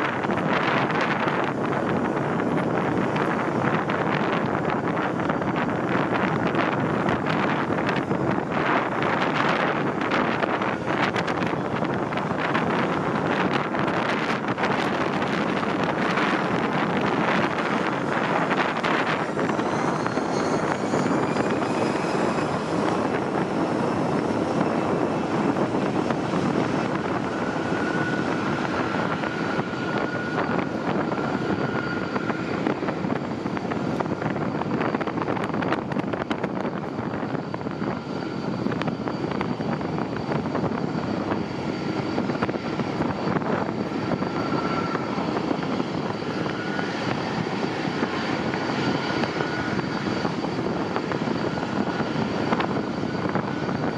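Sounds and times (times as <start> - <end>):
jet engines running: 0.0 - 53.9.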